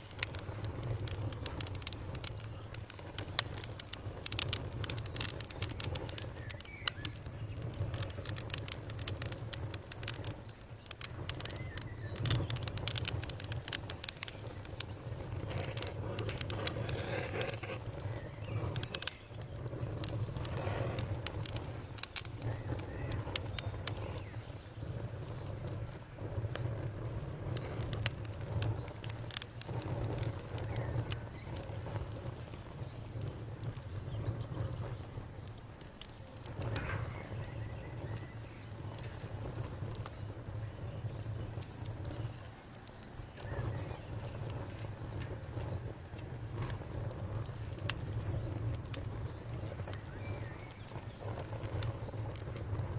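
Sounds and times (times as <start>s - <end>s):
faint cricket trill: 0.0s - 52.9s
wood fire crackling and popping: 0.0s - 52.9s
birds chirping: 4.8s - 8.4s, 10.1s - 25.5s, 43.3s - 44.6s.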